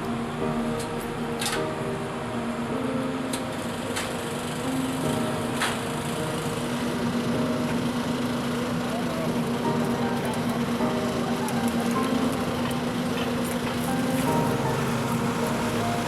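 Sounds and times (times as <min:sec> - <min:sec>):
small engine running: 0:06.1 - 0:16.0.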